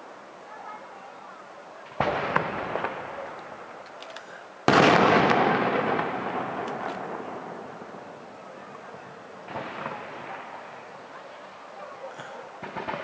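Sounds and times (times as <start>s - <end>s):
small firework pops: 1.9s - 7.6s, 12.2s - 13.0s
firework shells bursting: 2.0s - 8.2s.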